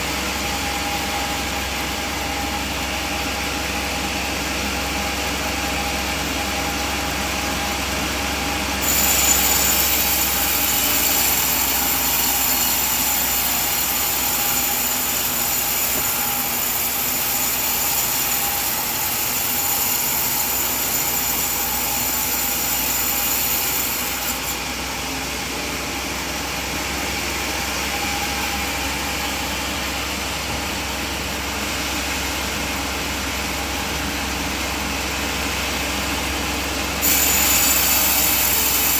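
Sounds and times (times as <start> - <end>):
bandsaw running: 0.0 - 38.9
high-pitched blade cutting log: 8.7 - 38.9.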